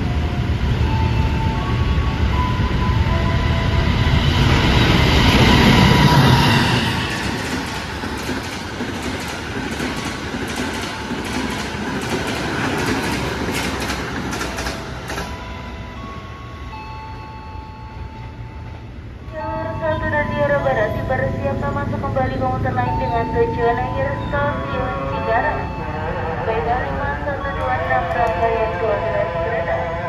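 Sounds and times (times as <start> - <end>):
passenger train passing at speed: 0.0 - 30.0
train wheels clicking over rail joints: 7.1 - 15.4.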